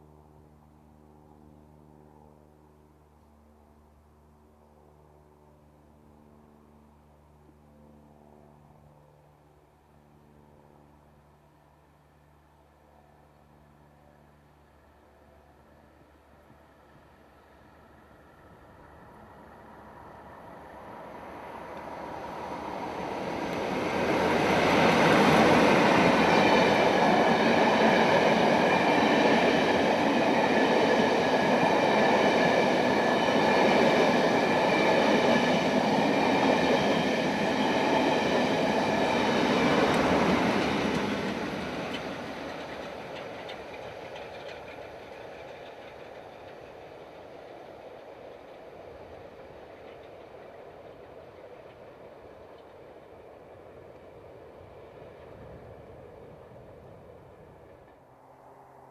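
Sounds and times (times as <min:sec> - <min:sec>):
diesel locomotive passing: 0:07.9 - 0:58.9
train wheels rumbling: 0:17.6 - 0:58.1.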